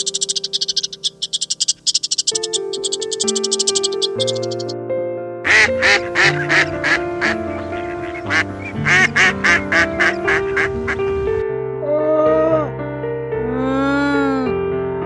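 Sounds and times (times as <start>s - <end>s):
duck quacking: 0.0s - 4.7s, 5.5s - 11.0s
background music: 0.0s - 15.0s.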